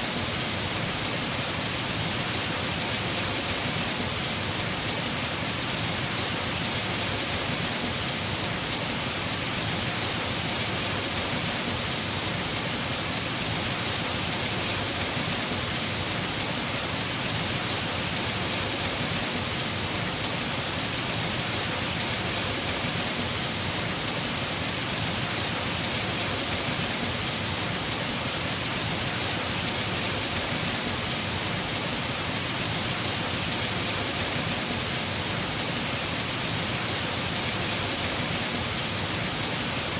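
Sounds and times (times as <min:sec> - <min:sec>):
heavy rain on a roof: 0:00.0 - 0:39.9.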